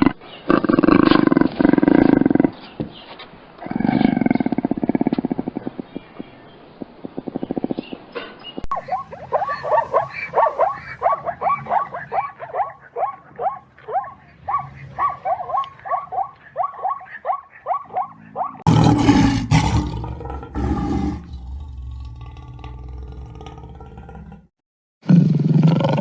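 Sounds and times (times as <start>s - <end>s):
animal yelping: 8.7s - 18.7s
big cat roaring: 17.9s - 26.0s.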